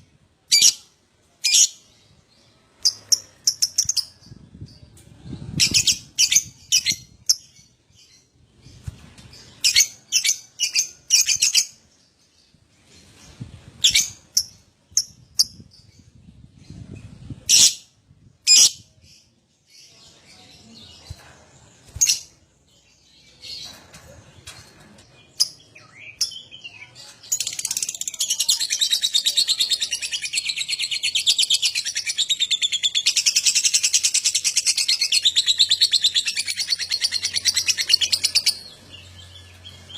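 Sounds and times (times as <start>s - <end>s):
lovebird chirping and chattering: 0.5s - 1.9s, 2.8s - 4.8s, 5.5s - 8.3s, 13.8s - 16.1s, 16.7s - 18.9s, 25.4s - 39.9s.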